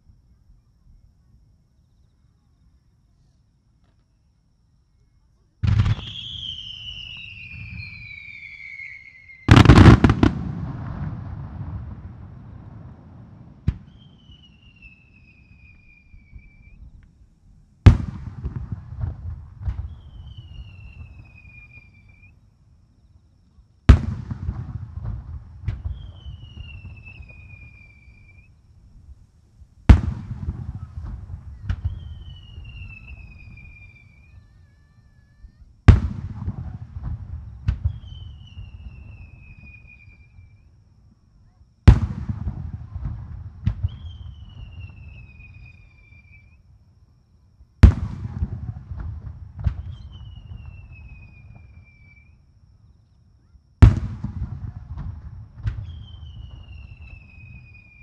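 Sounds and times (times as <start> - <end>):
fireworks bangs: 5.6 - 16.8, 17.8 - 22.3, 23.9 - 28.5, 29.8 - 34.5, 35.4 - 40.3, 41.8 - 46.3, 47.8 - 52.1, 53.8 - 58.0
fireworks crackling: 5.6 - 17.0, 17.8 - 22.3, 23.9 - 34.4, 35.4 - 40.2
sharp fireworks report: 5.6 - 17.0, 17.8 - 22.4, 23.8 - 40.6, 41.4 - 46.6, 47.8 - 52.3, 53.8 - 58.0.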